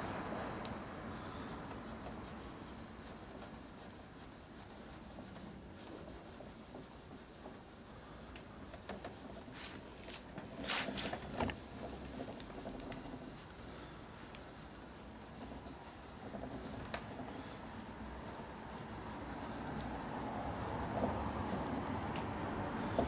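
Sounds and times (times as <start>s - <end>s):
scraping strokes: 9.5s - 11.4s.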